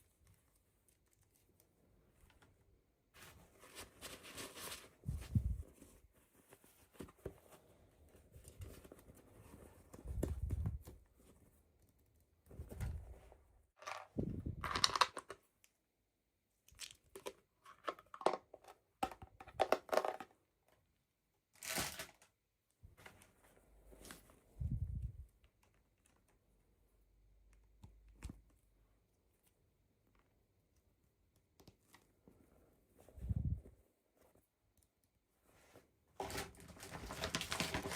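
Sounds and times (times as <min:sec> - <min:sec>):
packaging rustling and tearing: 0:36.2 - 0:37.9.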